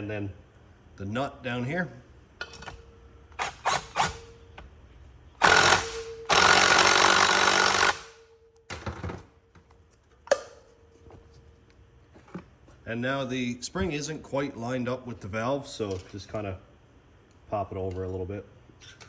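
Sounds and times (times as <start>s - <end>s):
power driver running: 5.4s - 8.2s.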